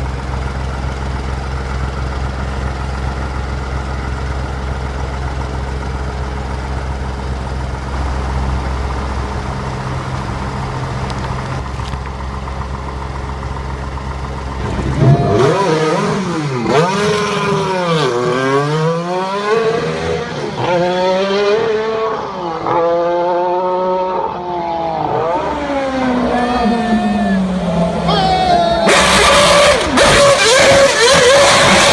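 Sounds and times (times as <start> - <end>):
heavy engine idling: 0.0 - 16.8
car engine revving and accelerating: 14.6 - 31.9.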